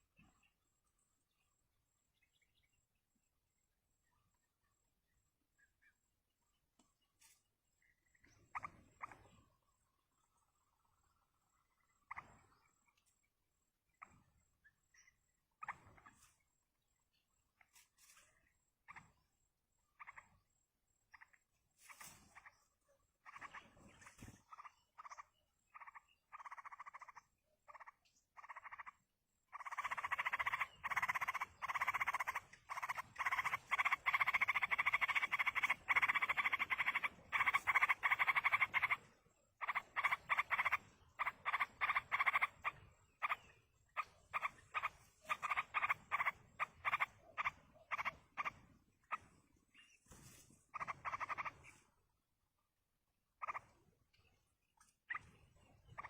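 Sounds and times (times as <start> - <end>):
bird chicks begging calls: 23.2 - 28.9, 29.5 - 49.3, 50.7 - 51.8.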